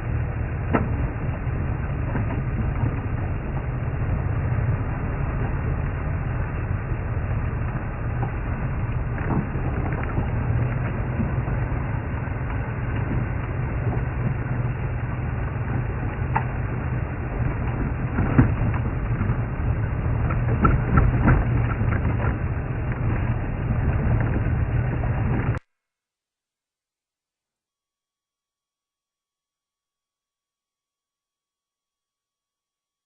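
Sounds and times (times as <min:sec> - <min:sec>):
vehicle engine rumble: 0:00.0 - 0:25.6.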